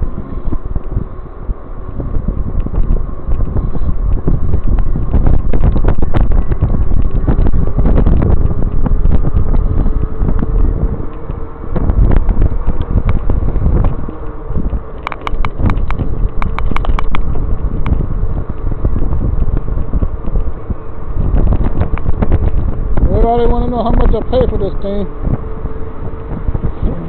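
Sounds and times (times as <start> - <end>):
faint steady whine: 0.0 - 27.0
wind buffeting microphone: 0.0 - 27.0
small knocks and rattles: 14.6 - 18.7.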